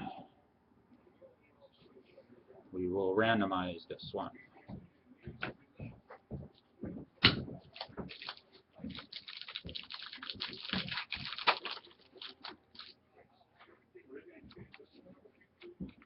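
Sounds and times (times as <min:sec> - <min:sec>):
crinkly rustling and clicks: 0:07.6 - 0:13.0.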